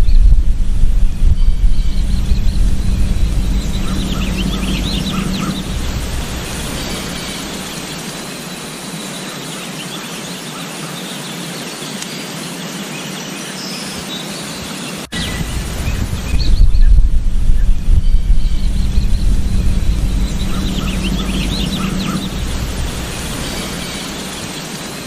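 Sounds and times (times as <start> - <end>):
wind rumbling on microphone: 0.0 - 8.8, 15.1 - 25.0
small birds chirping: 0.0 - 10.4, 13.8 - 25.0
steady outdoor hiss: 0.0 - 25.0.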